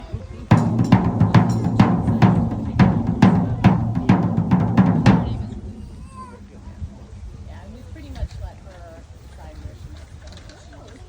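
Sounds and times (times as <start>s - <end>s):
large drum booming: 0.5s - 7.1s.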